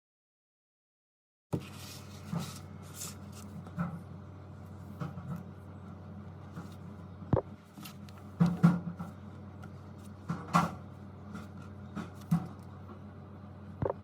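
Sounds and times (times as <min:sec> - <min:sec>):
steady low hum: 0:01.6 - 0:14.0.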